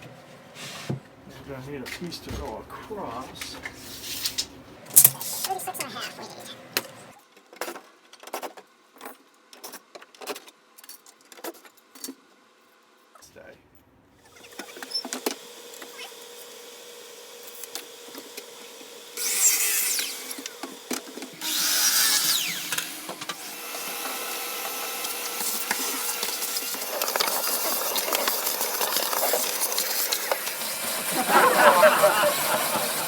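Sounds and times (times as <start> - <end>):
power tool cutting wood board: 14.3 - 33.0.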